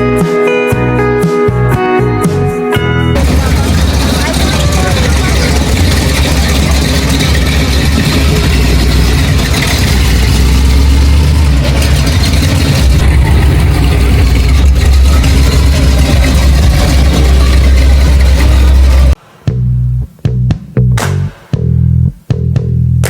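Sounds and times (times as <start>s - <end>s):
dense wash of noise: 3.2s - 19.3s
vehicle engine rumbling: 3.2s - 21.0s.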